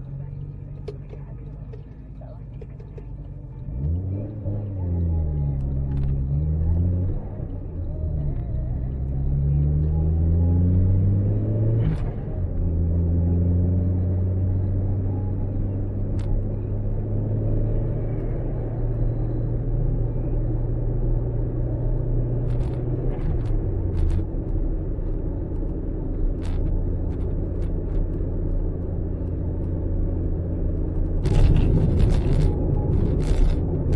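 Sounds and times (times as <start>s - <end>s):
loud crackling noise: 30.8s - 33.9s.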